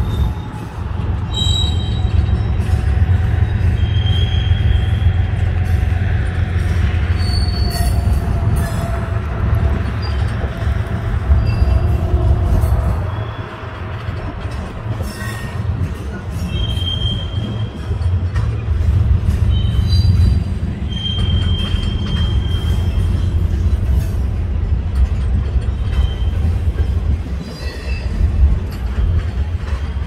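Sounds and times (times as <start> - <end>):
high wheel squeals: 0.0 - 5.9, 6.6 - 8.8, 9.8 - 13.9, 16.4 - 18.1, 19.3 - 23.4, 25.7 - 26.7
freight train cars rumbling: 0.0 - 30.0.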